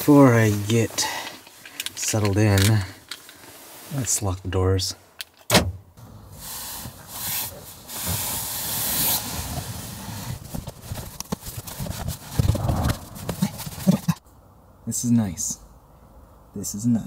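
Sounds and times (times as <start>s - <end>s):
car door locks clicking: 5.4s - 5.8s.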